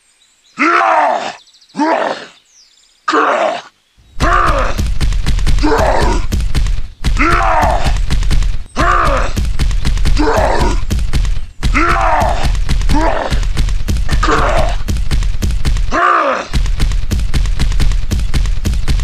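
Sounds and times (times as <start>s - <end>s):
low thumping beat: 4.1s - 19.0s.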